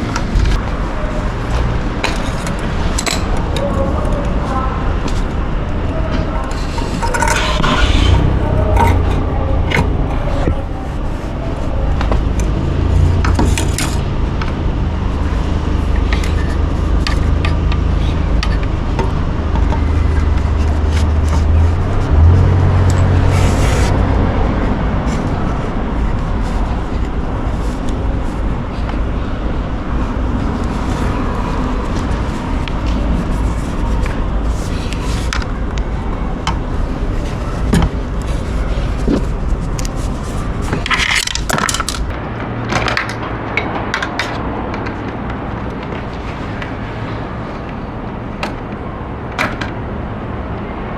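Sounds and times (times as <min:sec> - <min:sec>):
motorcycle exhaust drone: 0:00.0 - 0:42.6
steady low rumble: 0:00.0 - 0:50.9
scraping and rattling metal: 0:05.0 - 0:42.1.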